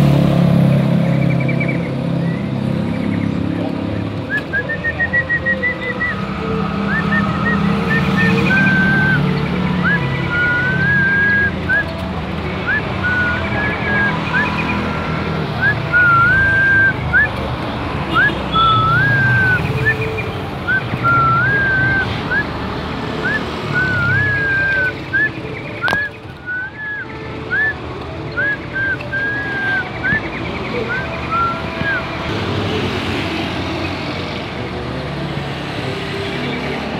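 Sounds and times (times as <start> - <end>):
road traffic rumble: 0.0 - 36.9
songbird whistling: 1.1 - 3.4, 4.2 - 12.0, 12.6 - 17.4, 18.1 - 22.6, 23.2 - 32.2.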